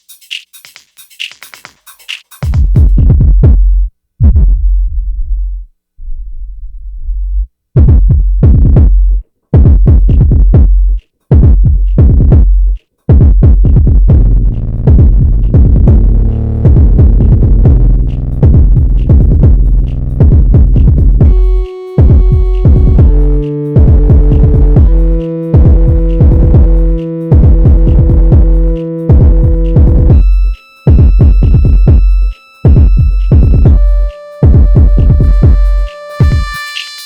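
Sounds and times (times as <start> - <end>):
drum machine bass beat: 0.0 - 5.6, 7.8 - 37.0
synthesizer layers: 14.2 - 37.0.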